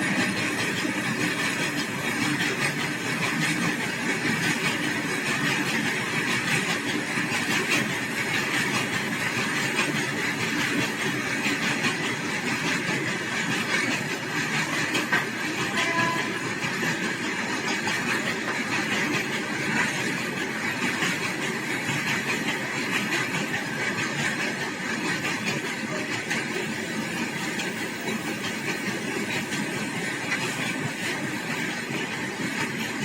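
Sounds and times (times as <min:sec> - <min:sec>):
train rumbling on track: 0:00.0 - 0:33.0
clatter of clicks: 0:07.4 - 0:33.0.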